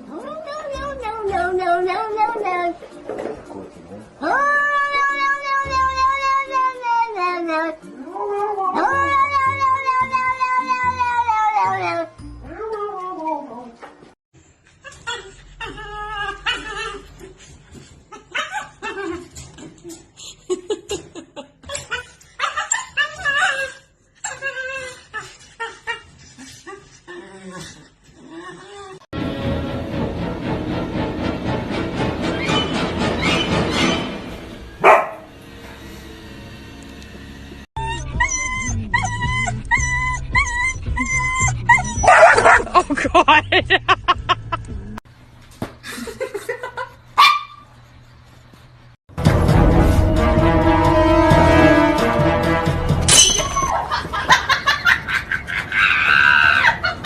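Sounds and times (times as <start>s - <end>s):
music: 5.2s - 12.8s, 29.2s - 41.6s, 49.1s - 53.7s
dog whining and yipping: 21.7s - 26.9s, 37.8s - 42.6s
dog barking: 34.8s - 35.3s, 42.0s - 42.7s, 47.2s - 47.6s
dog yipping: 34.8s - 35.3s, 37.8s - 42.6s, 47.2s - 47.7s.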